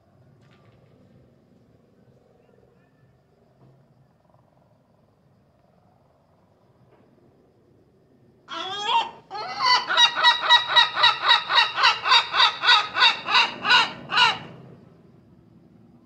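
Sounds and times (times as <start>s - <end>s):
gull calling: 8.5s - 14.5s.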